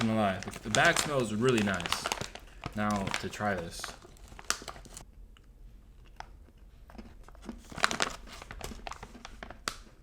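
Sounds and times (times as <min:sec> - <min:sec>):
person chewing cookie: 0:05.9 - 0:07.8.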